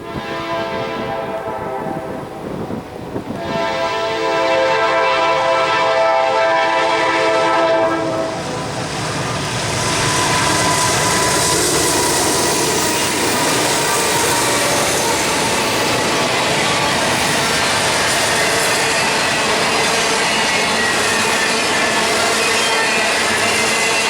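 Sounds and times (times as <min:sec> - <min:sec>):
train horn chord: 0:00.0 - 0:08.8, 0:09.7 - 0:12.1
train wheels rumbling and clattering: 0:05.2 - 0:24.0.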